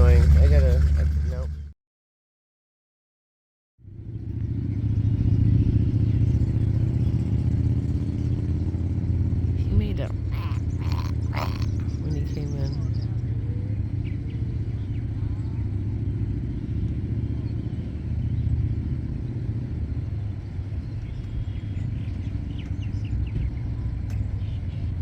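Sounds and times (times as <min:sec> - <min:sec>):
motor engine running: 0:00.0 - 0:01.7, 0:03.9 - 0:25.0
faint bird chirps: 0:10.1 - 0:15.8.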